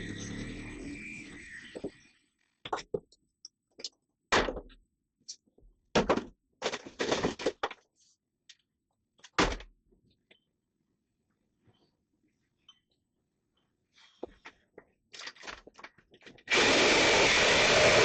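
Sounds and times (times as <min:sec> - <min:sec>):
knocks and thuds on wood: 0:04.3 - 0:04.8, 0:05.9 - 0:07.8.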